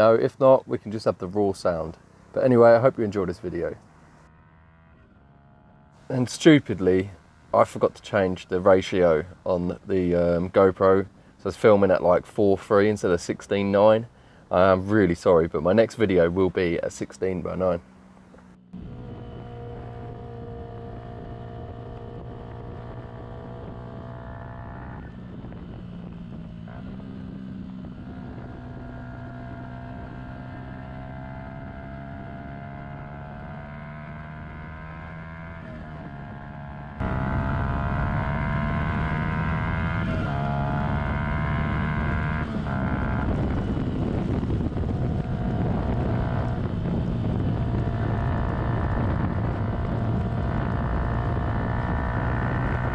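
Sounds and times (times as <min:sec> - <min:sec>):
motorcycle engine revving: 0:00.0 - 0:11.6, 0:13.8 - 0:52.9
wind rush: 0:25.0 - 0:28.9, 0:42.0 - 0:52.9.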